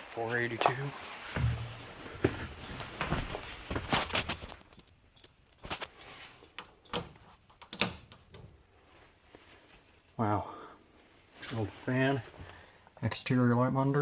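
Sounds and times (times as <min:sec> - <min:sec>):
outdoor background noise: 0:00.0 - 0:14.0
scuffing footsteps: 0:00.6 - 0:04.8.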